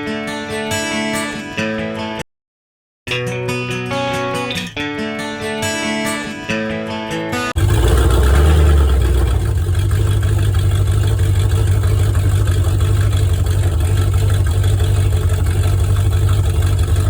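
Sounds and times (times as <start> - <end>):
car engine low rumble: 7.6 - 17.0.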